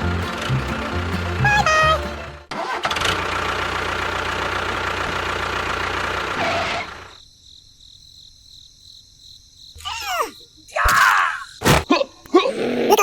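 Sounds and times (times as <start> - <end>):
engine chugging: 0.0 - 7.2.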